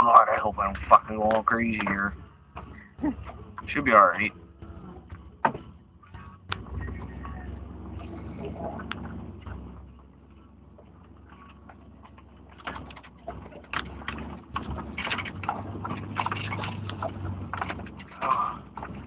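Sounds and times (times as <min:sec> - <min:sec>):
low engine hum: 0:00.0 - 0:19.0
truck body creaking and clunking: 0:00.0 - 0:19.0.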